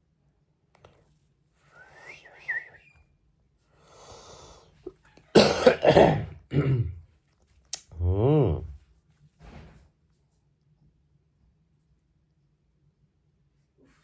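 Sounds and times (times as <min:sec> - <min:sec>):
soft breathy sounds: 0:03.7 - 0:05.0
person coughing: 0:05.4 - 0:07.0.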